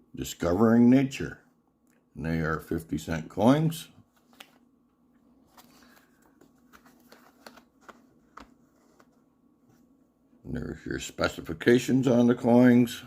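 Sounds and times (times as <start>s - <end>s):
faint clicks and rustles of packaging: 4.0s - 10.0s.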